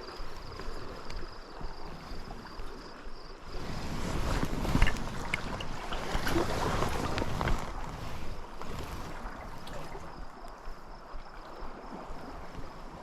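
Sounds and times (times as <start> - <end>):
wind on microphone: 0.0 - 13.0
faint ticks: 0.1 - 2.8.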